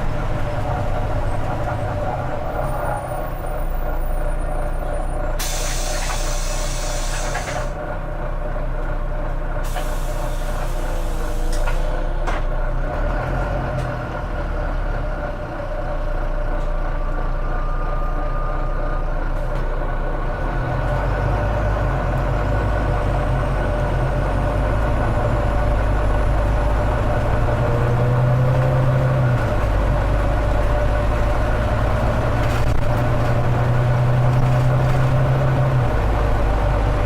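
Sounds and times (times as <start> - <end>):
bus diesel engine rumbling: 0.0 - 37.0
air brake hiss: 5.4 - 7.7, 9.6 - 12.0.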